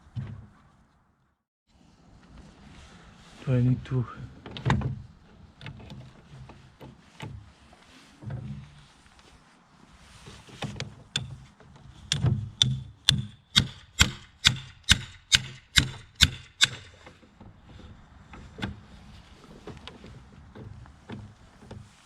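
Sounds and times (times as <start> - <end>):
hammer blows: 12.1 - 17.0.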